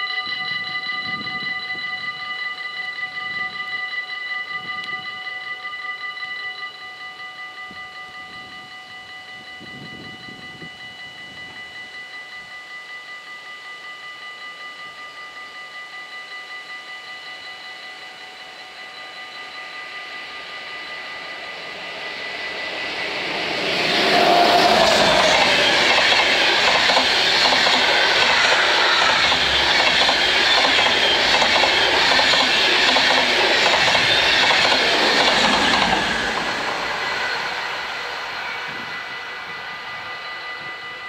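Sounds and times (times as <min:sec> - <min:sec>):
crossing warning bells ringing: 0:00.0 - 0:41.0
train wheels clattering over rails: 0:22.2 - 0:38.1.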